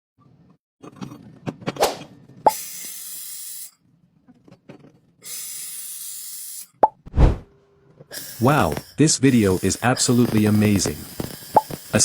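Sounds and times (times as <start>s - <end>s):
welding arc hissing: 2.5s - 3.8s, 5.3s - 6.8s, 8.1s - 12.0s.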